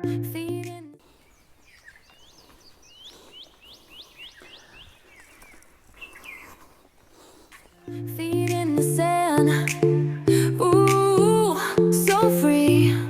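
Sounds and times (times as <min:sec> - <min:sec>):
faint outdoor background noise: 0:00.0 - 0:13.0
bird chirping: 0:01.0 - 0:08.0.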